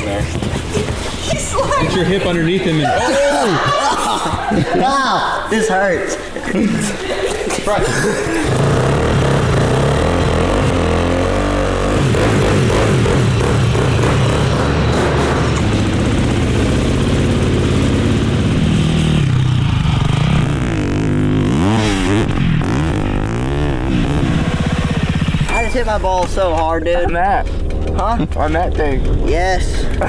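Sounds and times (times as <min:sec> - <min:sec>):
atv engine revving: 0:07.8 - 0:30.0.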